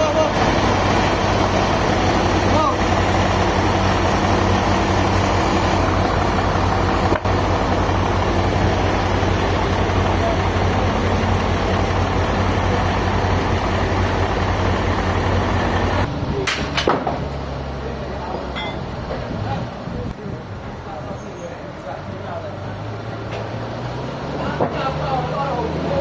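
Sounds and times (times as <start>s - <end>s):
machinery noise: 0.0s - 19.4s
heavy engine hum: 0.0s - 26.0s.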